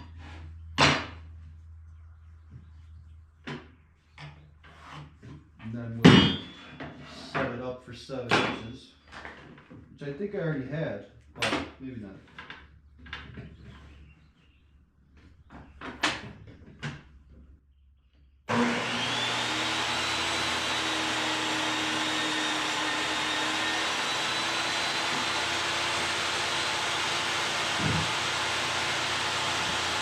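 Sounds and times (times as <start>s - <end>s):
power tool motor whining: 18.5s - 30.0s.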